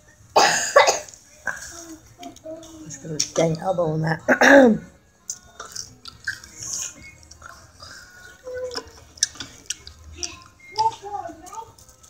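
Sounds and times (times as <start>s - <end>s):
wet chewing and lip smacks: 5.2s - 7.7s, 8.6s - 10.9s.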